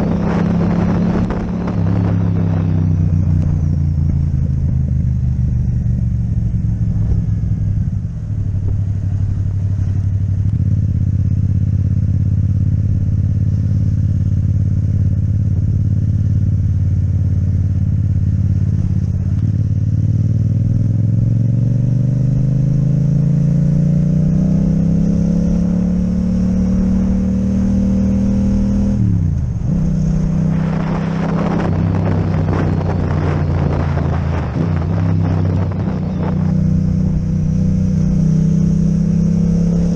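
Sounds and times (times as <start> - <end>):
rushing wind noise: 0.0 - 10.8, 24.3 - 39.9
motorcycle engine accelerating: 0.0 - 39.9.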